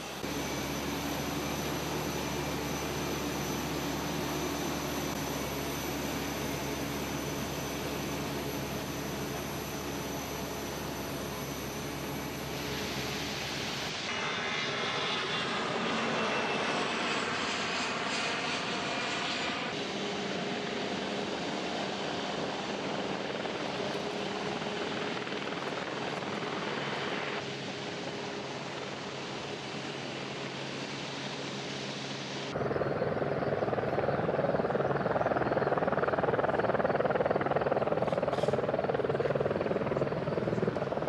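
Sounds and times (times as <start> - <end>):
jet engines roaring and whining: 0.0 - 41.0.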